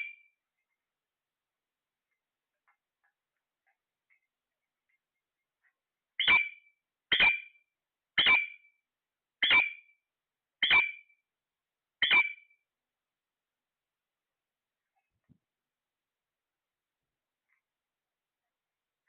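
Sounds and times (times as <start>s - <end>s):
parrot squawking: 6.2s - 7.4s.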